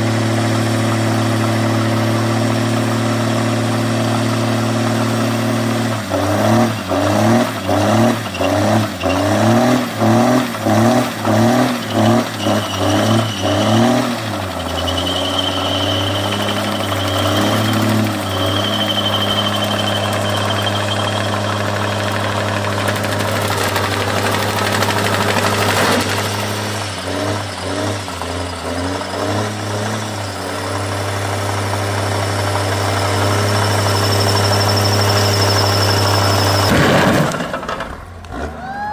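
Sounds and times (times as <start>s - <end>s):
diesel engine revving: 0.0s - 38.8s
high thin whistle: 11.3s - 23.0s, 33.0s - 36.7s.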